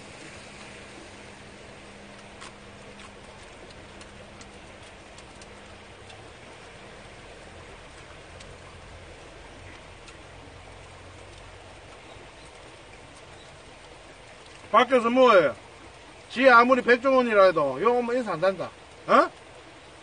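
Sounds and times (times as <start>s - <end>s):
steady rain falling: 0.0s - 20.0s
drops ticking on a surface: 2.2s - 15.0s.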